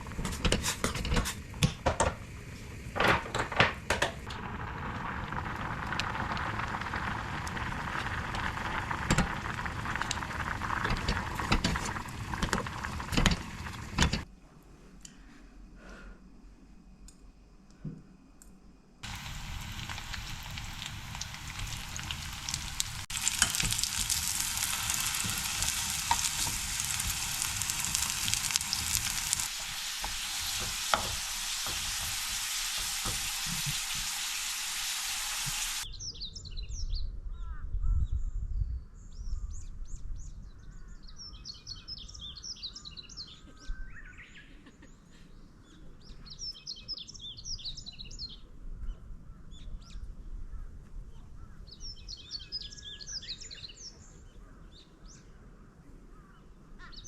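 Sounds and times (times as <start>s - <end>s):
dense steady hiss: 0.0s - 35.9s
small birds chirping: 19.1s - 55.5s.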